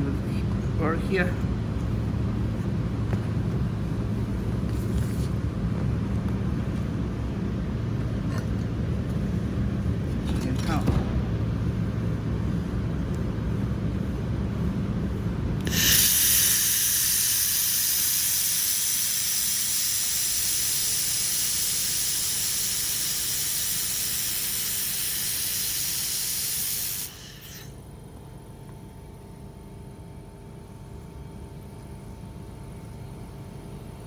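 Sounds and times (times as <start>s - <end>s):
welding gas hissing: 15.6s - 27.7s.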